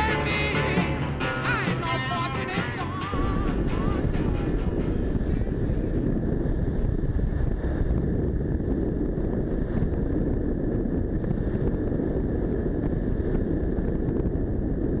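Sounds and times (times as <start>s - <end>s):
motorcycle engine running: 0.0s - 6.2s
wind on microphone: 0.0s - 15.0s.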